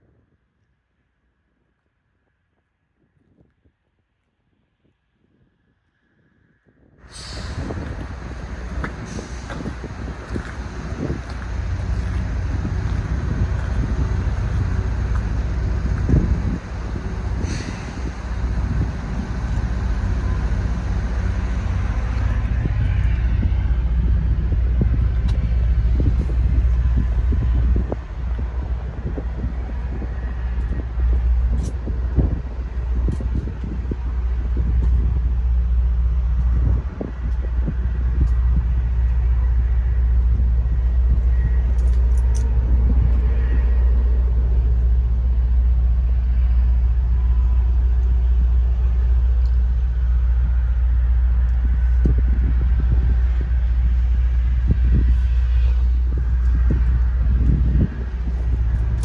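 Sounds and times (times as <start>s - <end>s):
diesel truck engine idling: 7.0s - 59.0s.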